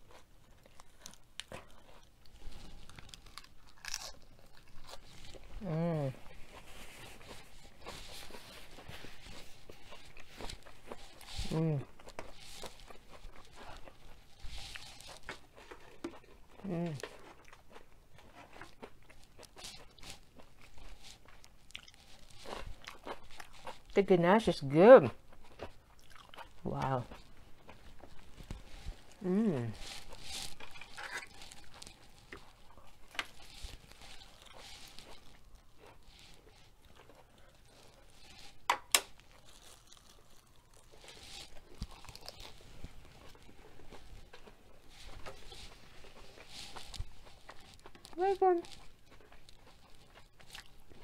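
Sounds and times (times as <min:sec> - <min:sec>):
chewing and crunching mouth sounds: 0:00.0 - 0:51.0.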